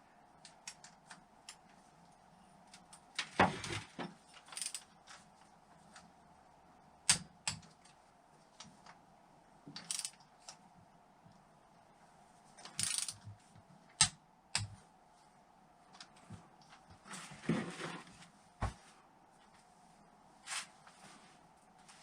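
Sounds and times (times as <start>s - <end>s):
torque wrench clicks: 9.8s - 10.2s, 12.8s - 13.2s
wrench ratcheting: 9.8s - 10.2s, 12.8s - 13.2s.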